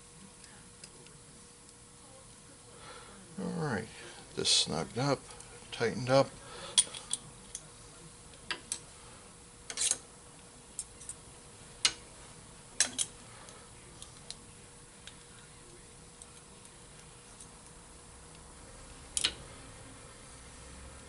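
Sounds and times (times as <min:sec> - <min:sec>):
faint steady hum: 0:00.0 - 0:21.0
tools clicking and tapping: 0:12.8 - 0:13.2.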